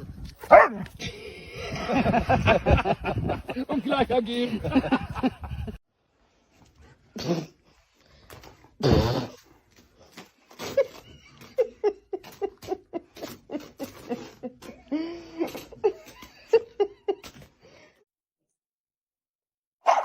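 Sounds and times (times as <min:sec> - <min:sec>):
person laughing: 0:01.0 - 0:05.8, 0:10.5 - 0:17.5.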